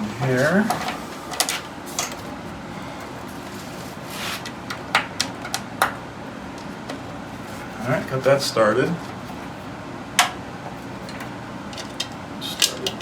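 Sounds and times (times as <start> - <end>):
low steady hum: 0.0 - 13.0
clicks and knocks of parts: 11.0 - 13.0.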